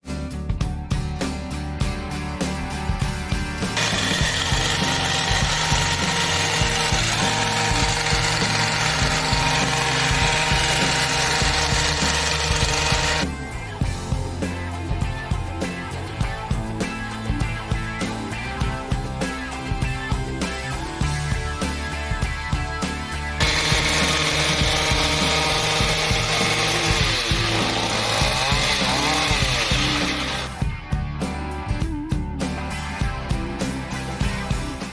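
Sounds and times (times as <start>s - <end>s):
background music with held chords: 0.0s - 34.9s
motorized trimmer engine running: 3.6s - 13.3s, 23.4s - 30.6s.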